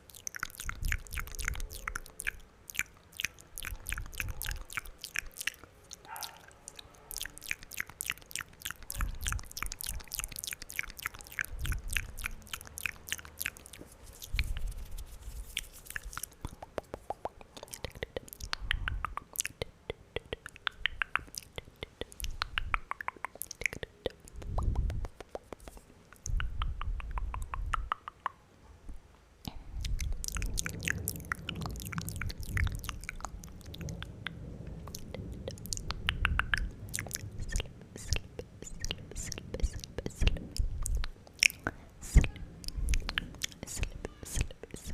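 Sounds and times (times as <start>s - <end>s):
wet mouth clicks and smacks: 0.0s - 28.4s, 29.4s - 44.9s
low rumble: 29.5s - 41.1s.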